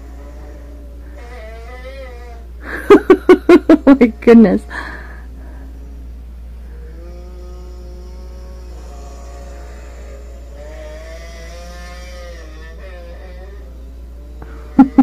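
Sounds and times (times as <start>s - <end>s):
steady low hum: 0.0s - 15.0s
eerie moaning drone: 4.2s - 15.0s.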